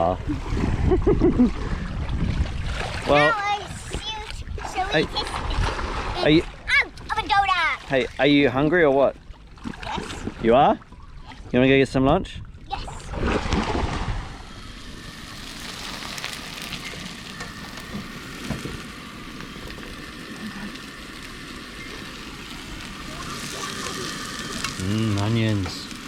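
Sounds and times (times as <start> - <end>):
onions sizzling: 15.0 - 26.0.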